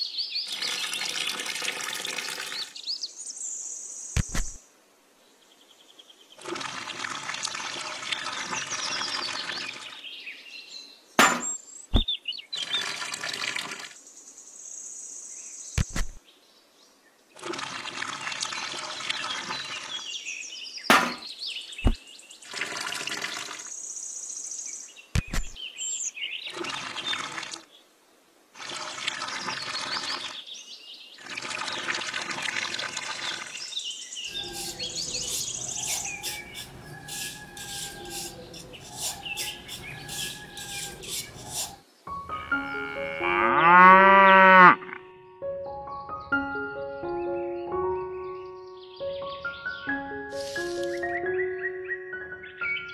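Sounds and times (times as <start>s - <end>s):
birds chirping: 33.2s - 45.0s, 45.9s - 52.9s
trowel scraping wet cement: 34.3s - 41.8s.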